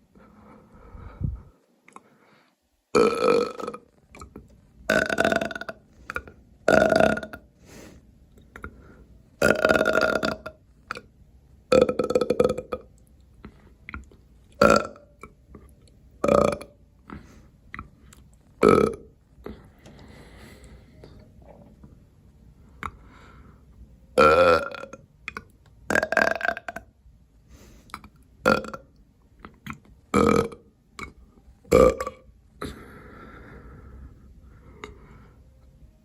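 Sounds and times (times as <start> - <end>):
person burping loudly: 2.9 - 4.3, 4.9 - 7.5, 9.4 - 11.1, 11.7 - 12.9, 14.6 - 15.3, 16.2 - 16.8, 18.6 - 19.6, 24.2 - 25.0, 25.9 - 26.9, 28.0 - 28.9, 30.1 - 32.9.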